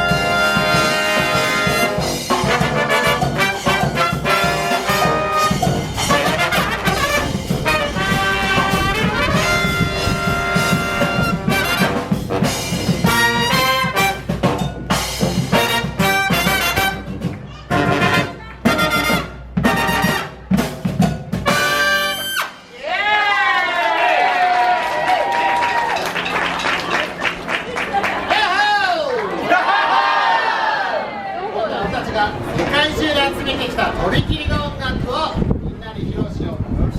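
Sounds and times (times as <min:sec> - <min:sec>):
drum: 0:00.0 - 0:22.0
brass band playing: 0:00.0 - 0:22.8.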